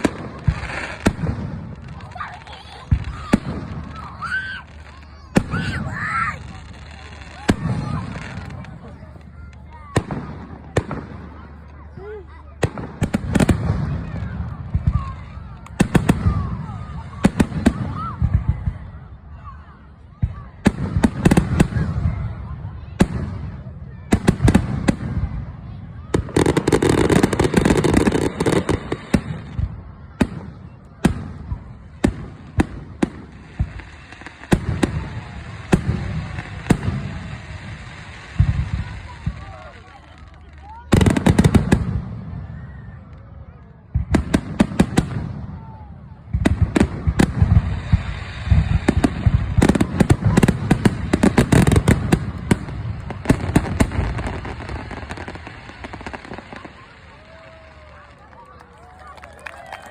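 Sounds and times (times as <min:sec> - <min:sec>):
fireworks exploding: 0:00.0 - 0:59.9.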